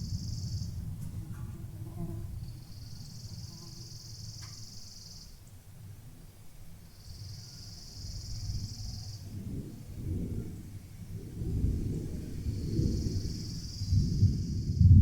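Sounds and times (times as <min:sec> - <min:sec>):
high insect buzz: 0:01.3 - 0:05.3
distant thunder rumbling: 0:09.2 - 0:15.0.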